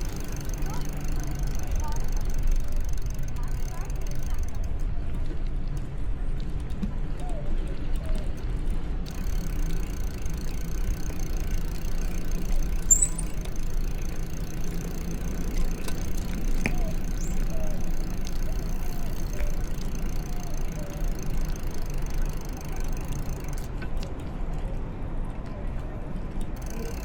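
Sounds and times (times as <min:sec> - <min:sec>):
wind and road noise: 0:00.0 - 0:27.0
high chirp: 0:12.6 - 0:13.5.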